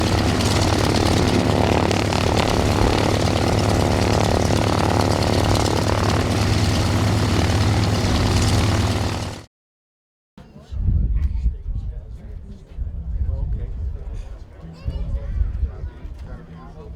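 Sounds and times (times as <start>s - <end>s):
biplane engine and propeller: 0.0s - 9.5s.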